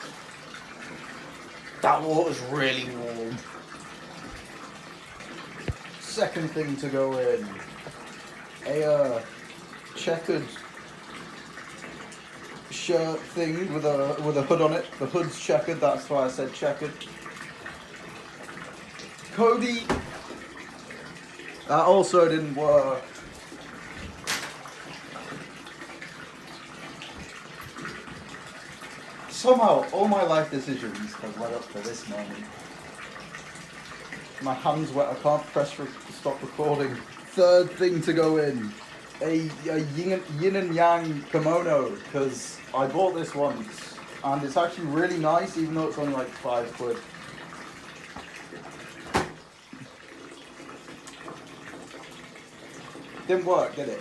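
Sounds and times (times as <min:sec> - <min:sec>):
water sloshing in bathtub: 0:00.0 - 0:54.0
water splash: 0:19.3 - 0:20.6, 0:49.0 - 0:49.5.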